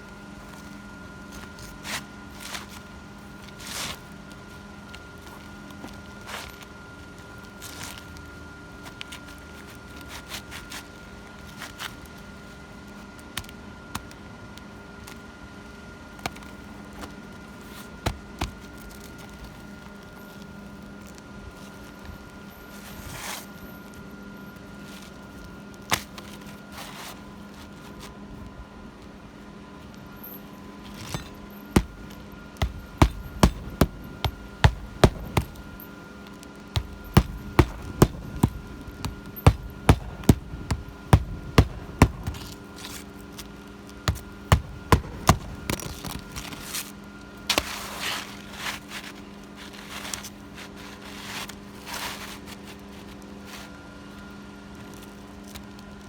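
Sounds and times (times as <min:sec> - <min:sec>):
hammer striking shingle roof: 0:31.1 - 0:35.8, 0:36.8 - 0:43.0, 0:44.1 - 0:46.3.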